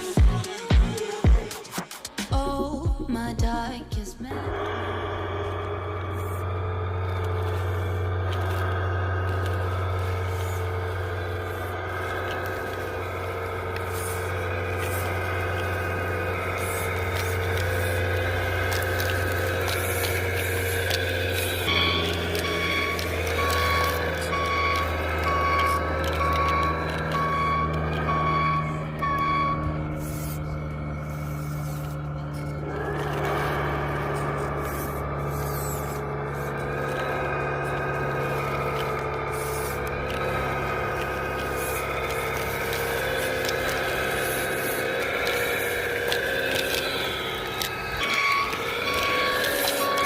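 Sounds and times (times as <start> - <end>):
low engine hum: 2.3 - 50.0
toy motor and gears whirring: 4.3 - 50.0
reversing alarm beeping: 4.5 - 50.0
scattered clicks: 5.4 - 50.0
beeping tone: 21.6 - 30.8.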